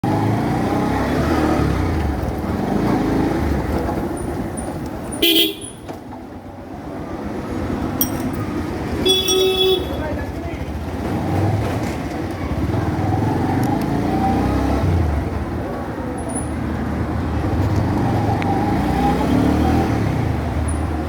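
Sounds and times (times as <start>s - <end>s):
road traffic rumbling: 0.0s - 21.0s
vehicle horn honking: 5.2s - 5.9s, 9.0s - 10.1s.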